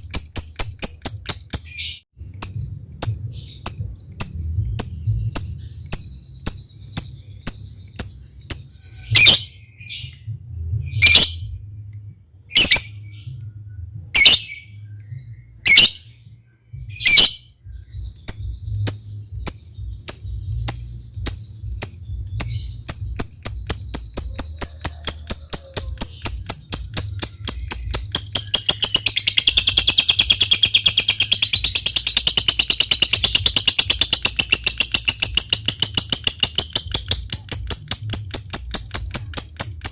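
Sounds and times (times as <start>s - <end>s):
lovebird chips and chatter: 18.2s - 39.9s.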